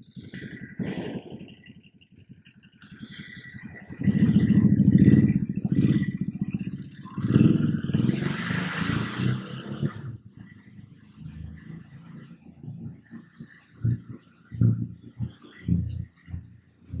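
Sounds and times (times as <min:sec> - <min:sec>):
motorcycle engine pulling away: 0:04.0 - 0:12.4.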